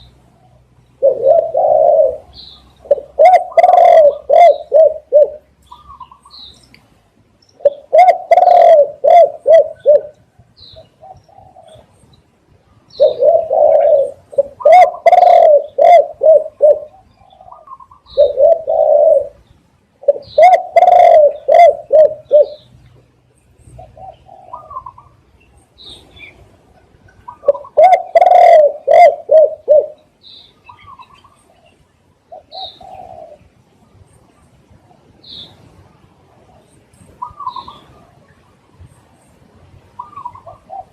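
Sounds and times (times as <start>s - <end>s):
dove cooing: 0.0s - 6.3s, 7.6s - 12.0s, 12.9s - 22.7s, 23.7s - 25.3s, 25.9s - 33.6s, 36.5s - 38.3s, 40.0s - 40.9s
faint high bird chirps: 36.6s - 40.9s.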